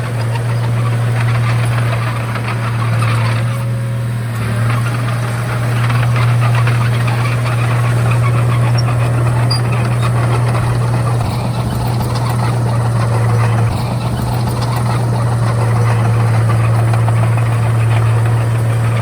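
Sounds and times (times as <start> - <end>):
bulldozer diesel engine running: 0.0 - 19.0
metal rattling clatter: 0.0 - 19.0.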